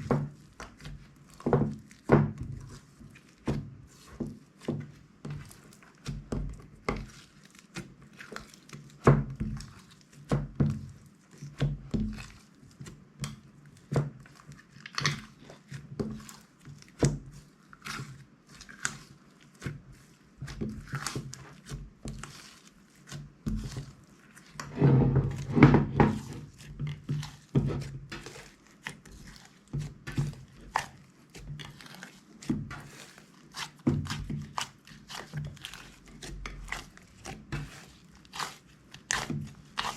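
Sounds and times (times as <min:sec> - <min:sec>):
hands squishing slime: 0:00.0 - 0:39.9.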